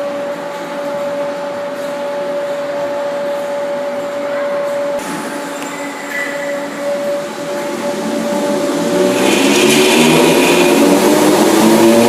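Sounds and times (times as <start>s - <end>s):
electric train whine: 0.0s - 12.0s
rumbling hiss: 5.0s - 12.0s.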